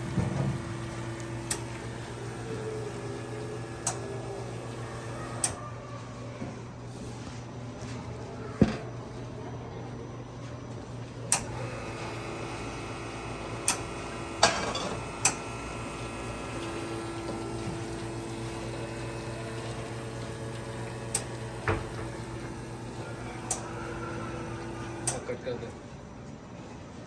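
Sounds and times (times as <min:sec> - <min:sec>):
espresso machine pump hum: 0:00.0 - 0:05.6, 0:11.4 - 0:25.3.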